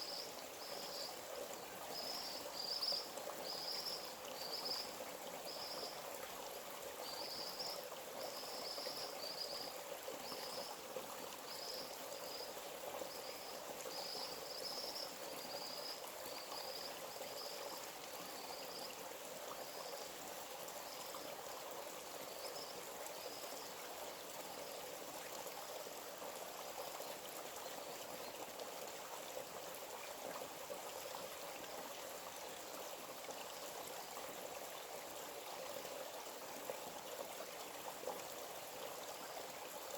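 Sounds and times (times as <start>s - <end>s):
stream running: 0.0s - 39.9s.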